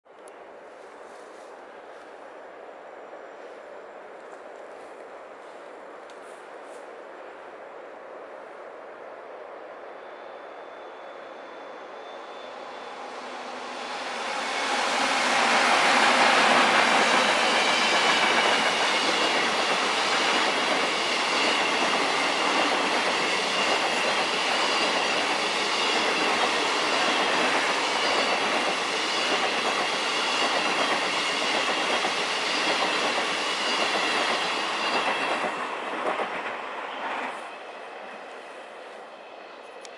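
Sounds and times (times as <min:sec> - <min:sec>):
train wheels rushing on rail: 0:09.4 - 0:39.9.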